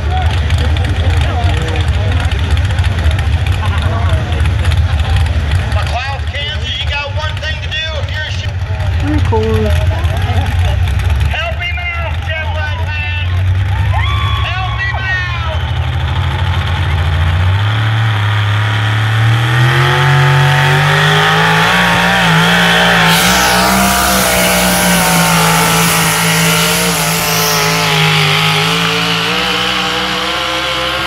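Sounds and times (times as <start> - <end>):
truck engine revving hard: 0.0 - 31.0.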